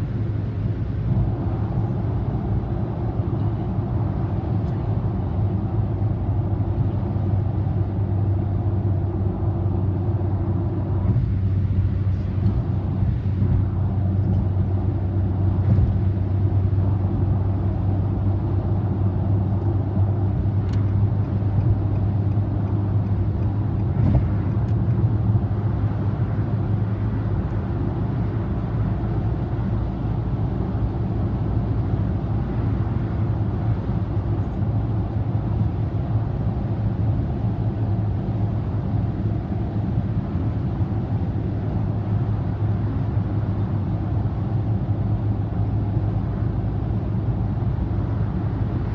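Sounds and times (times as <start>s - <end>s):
car interior road drone: 0.0s - 48.9s.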